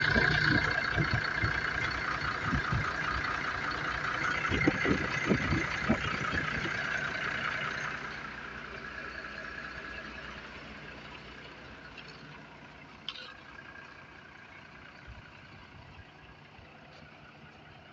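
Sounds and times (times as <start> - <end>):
truck engine idling: 0.0 - 17.9.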